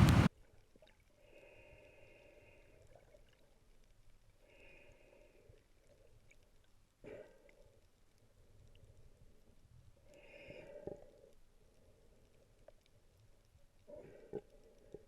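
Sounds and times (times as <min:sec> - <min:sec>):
faint muffled hum: 0:00.0 - 0:00.3
short soft sound: 0:00.0 - 0:00.3.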